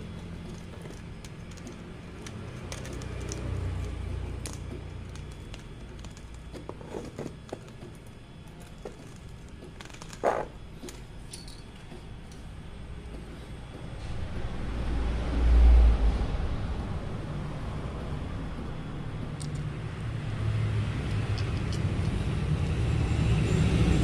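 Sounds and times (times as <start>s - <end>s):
small hard parts clicking and rattling: 0.0s - 12.5s, 19.2s - 19.8s, 21.0s - 22.5s
low steady hum: 0.0s - 24.0s.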